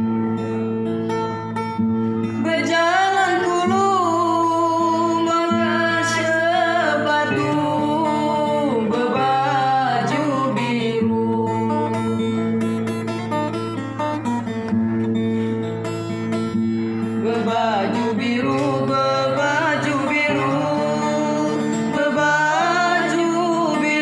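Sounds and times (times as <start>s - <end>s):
plucked acoustic guitar: 0.0s - 24.0s
person singing folk song: 2.2s - 13.8s, 16.5s - 24.0s.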